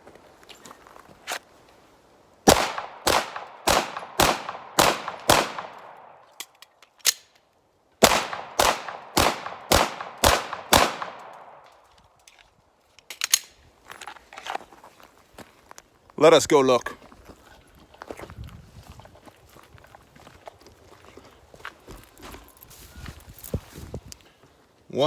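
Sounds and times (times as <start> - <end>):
pistol shots: 2.5 - 6.2, 8.0 - 11.6.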